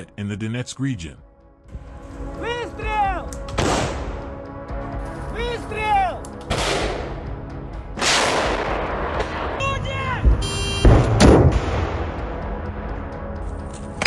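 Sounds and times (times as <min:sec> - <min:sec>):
sharp bangs: 0:01.7 - 0:12.5
men shouting: 0:02.0 - 0:06.4
anti-aircraft gun firing: 0:06.5 - 0:07.3, 0:08.0 - 0:09.6.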